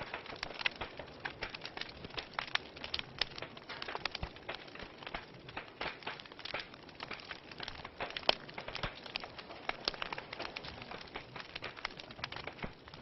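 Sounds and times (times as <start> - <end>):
soft fire hiss: 0.0 - 13.0
wood fire snaps and pops: 0.0 - 13.0.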